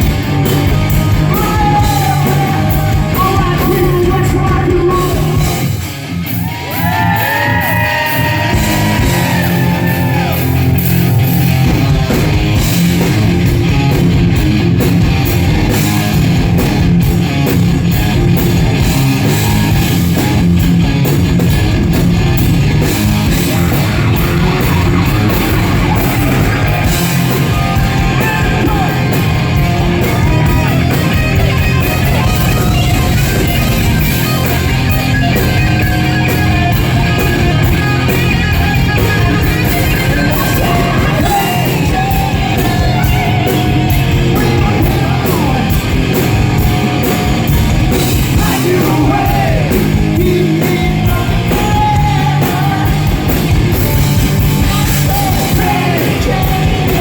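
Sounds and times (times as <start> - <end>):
hard rock band playing: 0.0 - 57.0
person singing: 0.4 - 5.6, 35.6 - 47.2, 48.1 - 53.4, 54.6 - 57.0.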